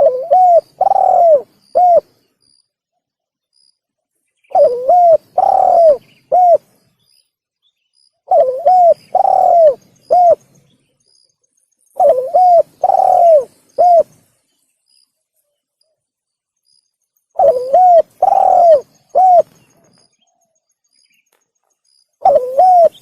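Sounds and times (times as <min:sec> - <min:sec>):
dove cooing: 0:00.0 - 0:02.2, 0:04.5 - 0:06.7, 0:08.3 - 0:10.5, 0:12.0 - 0:14.1, 0:17.4 - 0:20.0, 0:22.2 - 0:23.0.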